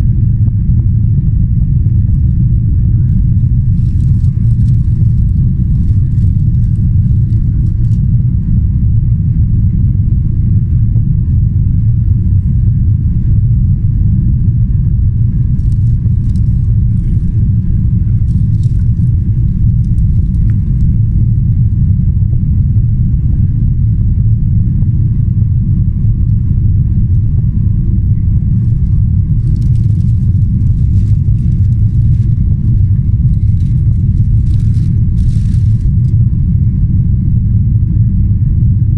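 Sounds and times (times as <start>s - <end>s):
aircraft cabin engine rumble: 0.0s - 38.9s
faint rattling: 28.5s - 36.1s.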